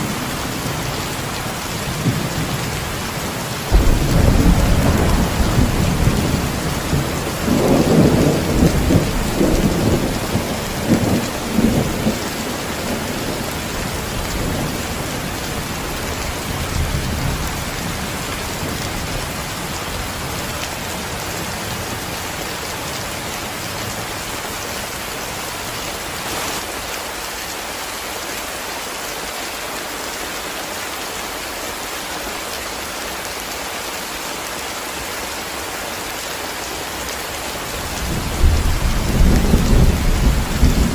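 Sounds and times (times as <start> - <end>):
heavy rain falling: 0.0 - 40.9
thunder rumbling: 0.1 - 20.5, 37.8 - 40.9.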